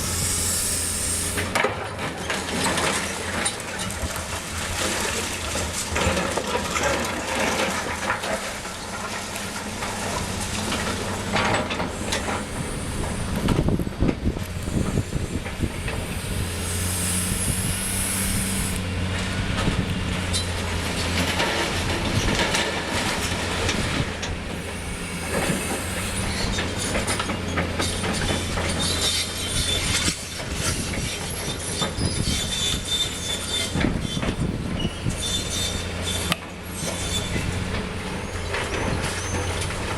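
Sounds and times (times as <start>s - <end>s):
high hiss: 0.0s - 1.5s, 14.5s - 18.8s, 24.5s - 26.6s
excavator diesel engine: 0.0s - 39.9s.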